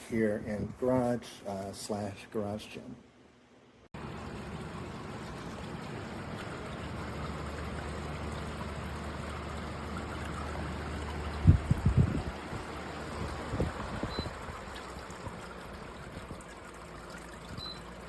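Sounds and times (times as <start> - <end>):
fan air rushing: 0.0 - 18.0
water trickling: 4.0 - 18.0.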